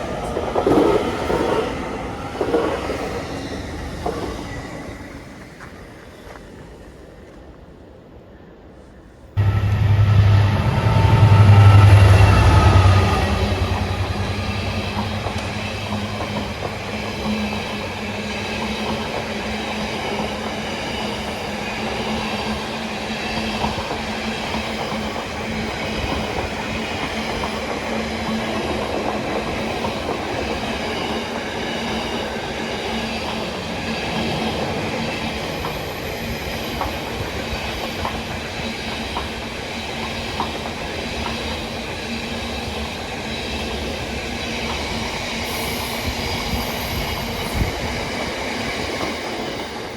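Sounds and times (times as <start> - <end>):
train wheels on rails: 0.0 - 49.9
low hum: 9.4 - 17.4.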